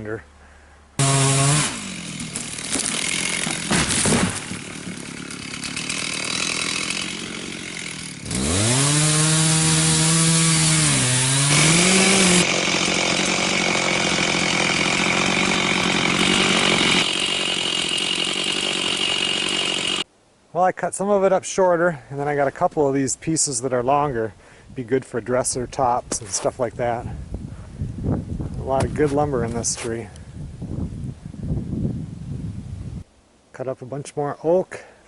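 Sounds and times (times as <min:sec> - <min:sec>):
chainsaw cutting into wood: 0:01.0 - 0:20.1.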